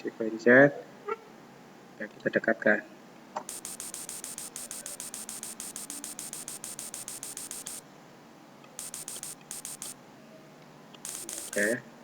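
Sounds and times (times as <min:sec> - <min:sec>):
rapid computer clicking: 0:03.5 - 0:07.8, 0:08.8 - 0:10.0, 0:11.0 - 0:11.8.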